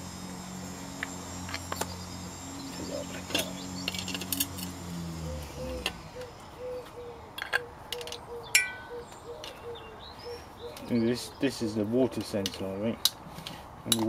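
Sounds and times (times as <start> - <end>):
low hum: 0.0 - 9.2
metal clicks of hand tools: 12.2 - 14.0.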